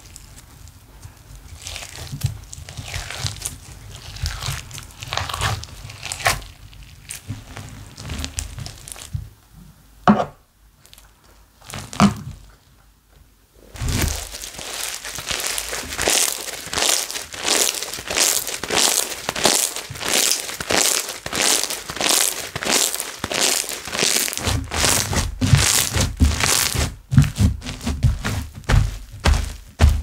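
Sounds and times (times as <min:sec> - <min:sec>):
slime squished by hand: 0:01.5 - 0:09.1, 0:13.8 - 0:30.0.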